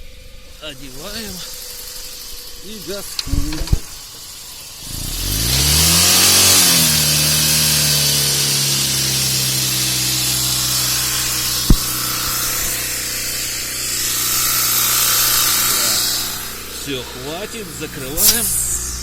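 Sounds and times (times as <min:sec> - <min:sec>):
steady hiss: 0:00.0 - 0:19.0
vehicle engine revving: 0:00.0 - 0:19.0
sharp knock: 0:11.6 - 0:13.0.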